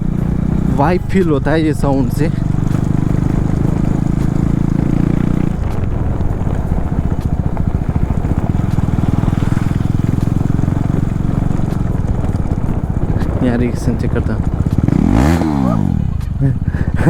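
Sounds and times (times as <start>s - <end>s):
unmuffled motorcycle engine: 0.0s - 17.0s.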